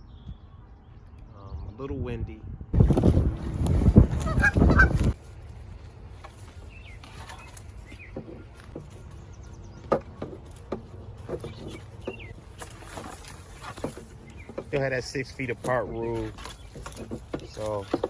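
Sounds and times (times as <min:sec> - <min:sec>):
wind buffeting microphone: 0:00.0 - 0:05.2
bird chirps: 0:06.6 - 0:10.6, 0:11.2 - 0:14.8.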